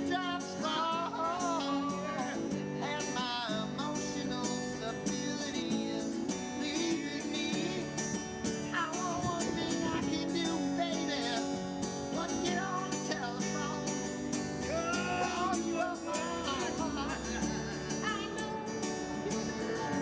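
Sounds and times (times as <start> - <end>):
person singing: 0.0 - 8.1, 14.6 - 20.0
acoustic guitar: 0.0 - 20.0.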